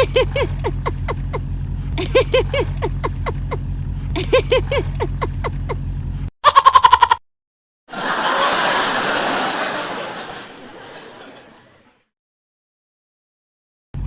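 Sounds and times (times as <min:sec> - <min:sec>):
low motor drone: 0:00.0 - 0:06.3.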